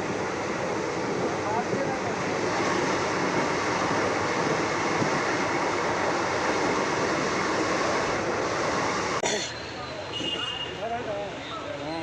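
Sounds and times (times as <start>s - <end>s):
train rumbling: 0.0s - 9.4s.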